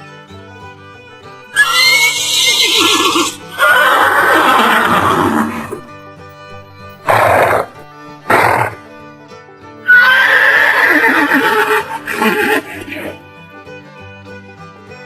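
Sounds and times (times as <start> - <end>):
background music: 0.0 - 15.0
horse whinnying: 1.6 - 5.9, 7.0 - 8.9, 9.9 - 13.2
horse snorting: 2.3 - 5.8, 7.0 - 8.9, 9.9 - 13.2.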